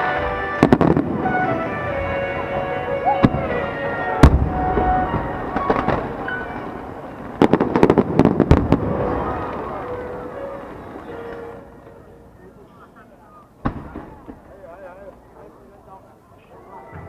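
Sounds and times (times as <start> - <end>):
background music: 0.0 - 7.6, 8.4 - 12.6
crackling firework reports: 0.0 - 12.2, 13.5 - 15.6
firework bang: 0.6 - 2.1, 3.1 - 10.7, 13.6 - 14.6.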